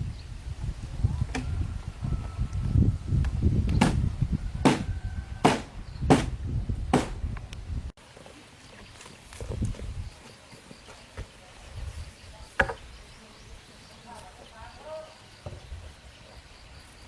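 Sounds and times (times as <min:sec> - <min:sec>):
low rumbling handling noise: 0:00.5 - 0:07.9
hand tool striking wood: 0:04.6 - 0:04.8, 0:05.4 - 0:07.2.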